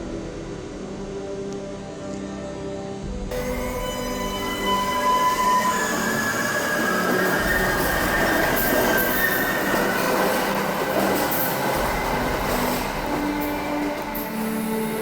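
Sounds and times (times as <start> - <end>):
train rumbling and rattling: 3.3 - 15.0
train wheels squealing: 3.3 - 15.0.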